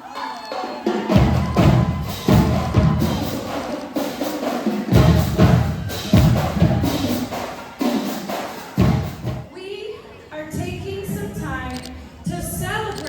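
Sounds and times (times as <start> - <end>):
snare drums rattling: 0.4 - 9.5
bass drum hits: 1.2 - 3.4, 5.0 - 7.1.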